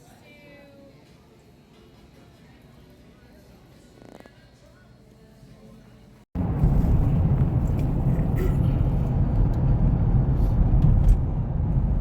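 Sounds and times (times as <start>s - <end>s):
vehicle rumbling in motion: 6.4s - 12.0s.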